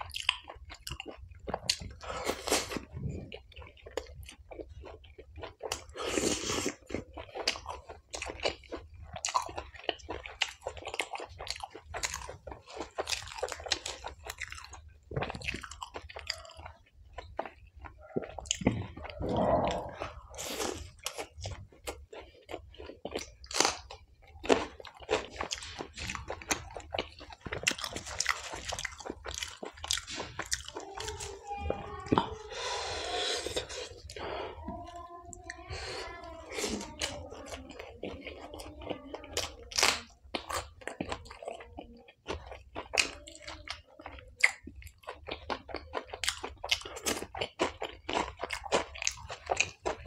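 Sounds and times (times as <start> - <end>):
chewing and crunching food: 0.0 - 50.0.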